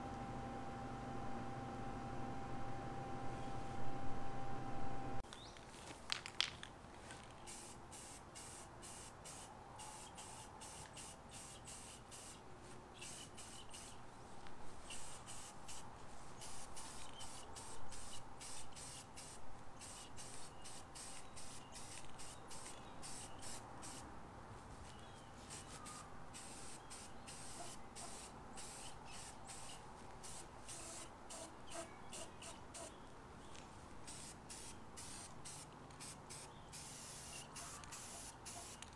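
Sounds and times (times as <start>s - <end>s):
aerosol can spraying: 7.5s - 12.4s, 13.0s - 14.0s, 14.9s - 15.8s, 16.4s - 24.0s, 26.4s - 32.9s, 34.1s - 38.9s.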